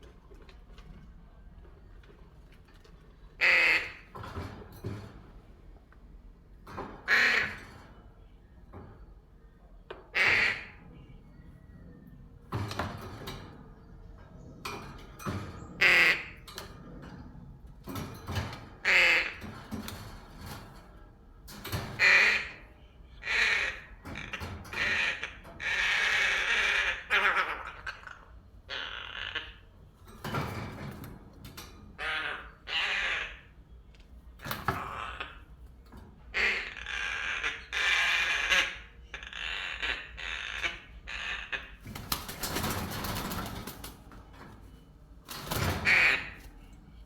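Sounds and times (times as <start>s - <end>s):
crow cawing: 3.4s - 4.1s, 7.0s - 7.7s, 9.9s - 10.8s, 18.8s - 19.5s, 21.8s - 29.8s, 31.9s - 33.8s, 34.6s - 35.5s, 36.3s - 43.6s, 45.6s - 46.6s.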